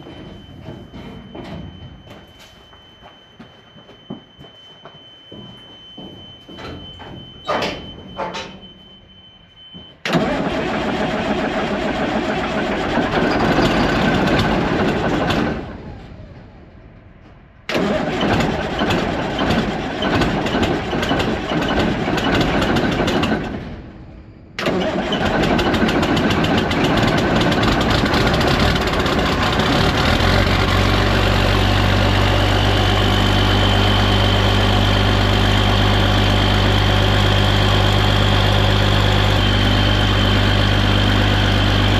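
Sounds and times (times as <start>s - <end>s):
tractor starter cranking: 10.1s - 15.6s, 17.7s - 23.5s, 24.6s - 41.9s
tractor engine idling: 24.6s - 41.9s.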